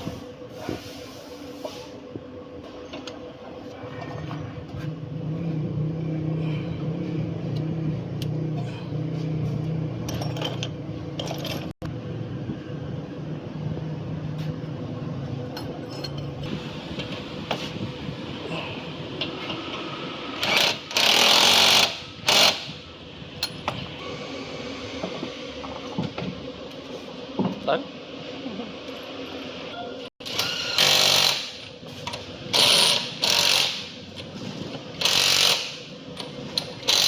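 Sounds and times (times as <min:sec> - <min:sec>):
low machine hum: 0:00.0 - 0:21.0
metal tools clinking: 0:15.6 - 0:16.4.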